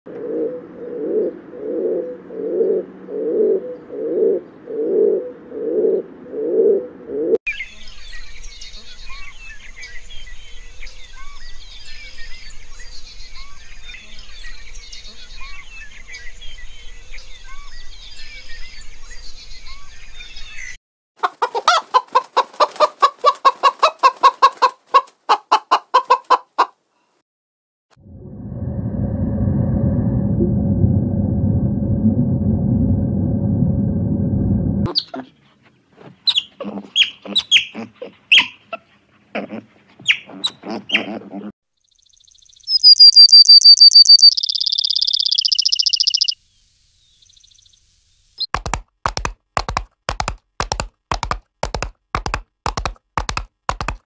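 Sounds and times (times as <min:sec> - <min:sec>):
pigeon cooing: 0:00.1 - 0:07.4, 0:39.4 - 0:41.5
small birds chirping: 0:07.5 - 0:20.8, 0:34.9 - 0:48.5
rapid sharp bird calls: 0:42.6 - 0:46.4.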